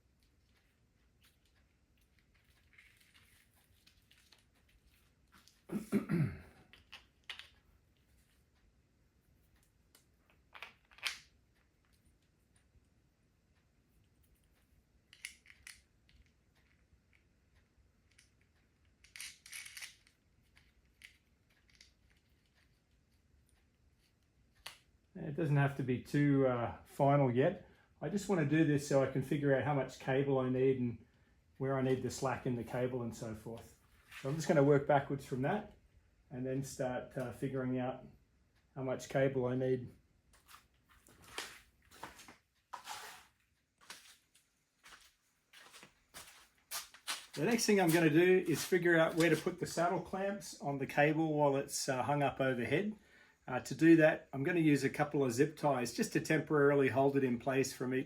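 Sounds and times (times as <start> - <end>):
cable handling rustles and scrapes: 0.4 - 5.7.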